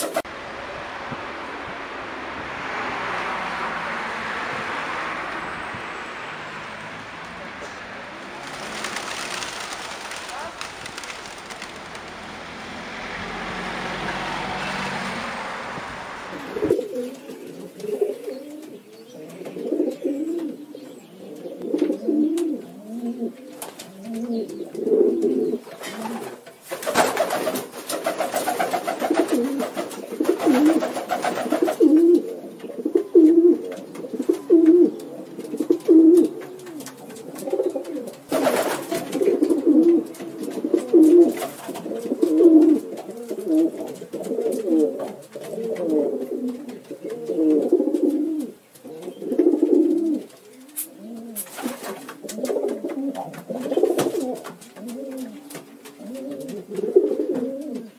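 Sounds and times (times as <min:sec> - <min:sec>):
loud rushing noise: 0:00.0 - 0:16.8
pigeons cooing: 0:16.2 - 0:57.9.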